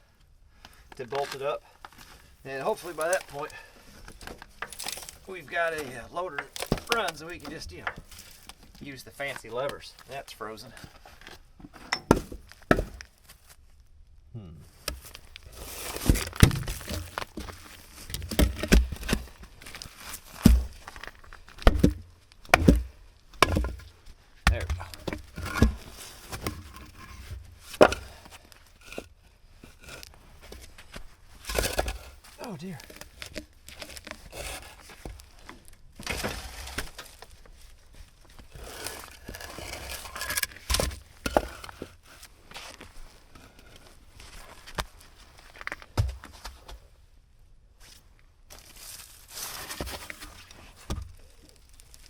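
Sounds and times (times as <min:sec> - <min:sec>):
sharp knocks and deep thumps: 0:21.6 - 0:27.1.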